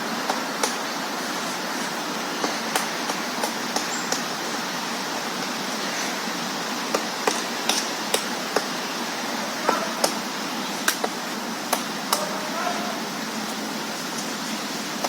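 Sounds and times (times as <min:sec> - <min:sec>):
woodpecker pecking on tree: 0:00.2 - 0:04.5, 0:06.9 - 0:08.8, 0:09.6 - 0:12.4.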